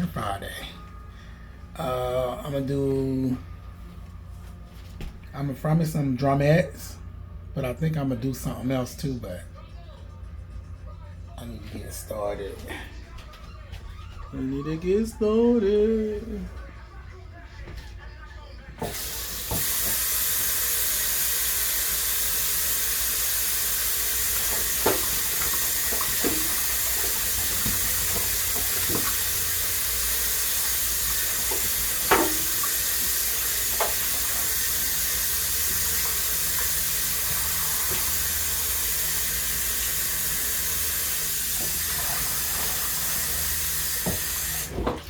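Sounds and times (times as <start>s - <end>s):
faucet running: 18.8s - 45.0s.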